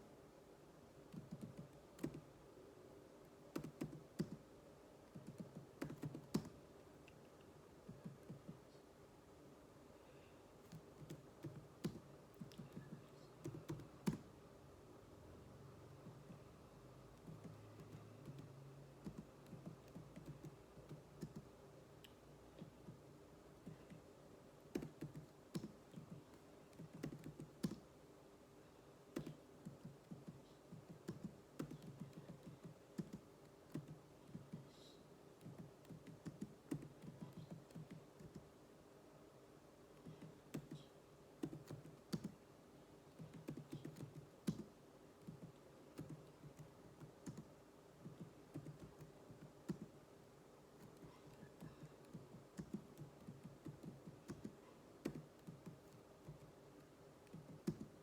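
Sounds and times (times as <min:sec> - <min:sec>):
faint steady hum: 0:00.0 - 0:58.0
keyboard typing: 0:01.1 - 0:02.3, 0:03.5 - 0:04.5, 0:05.1 - 0:06.6, 0:10.6 - 0:14.3, 0:17.2 - 0:21.5, 0:24.7 - 0:27.9, 0:29.1 - 0:34.8, 0:35.4 - 0:38.5, 0:40.0 - 0:42.4, 0:43.1 - 0:50.0, 0:50.8 - 0:58.0.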